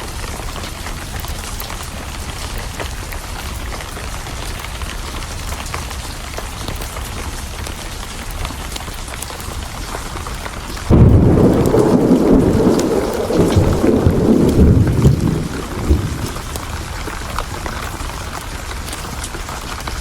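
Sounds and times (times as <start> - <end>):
steady rain: 0.0 - 20.0
thunder crack and rumble: 10.9 - 18.4.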